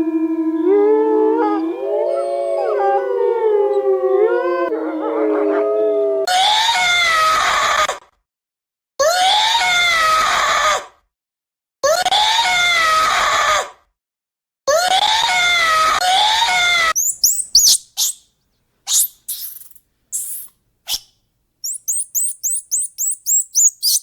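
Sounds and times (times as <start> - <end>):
dogs howling: 0.0 - 6.4
harsh falling calls: 17.0 - 18.2, 18.9 - 20.5, 21.6 - 24.0.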